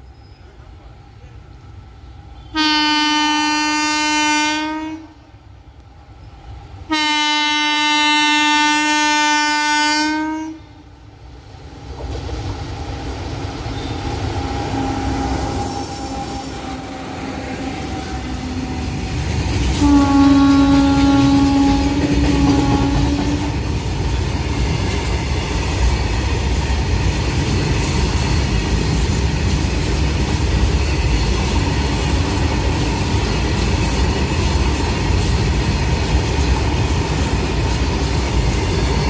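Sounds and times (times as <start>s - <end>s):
freight train rumble: 0.0s - 39.0s
locomotive air horn blasts: 2.4s - 5.2s, 6.9s - 10.8s, 19.8s - 23.6s.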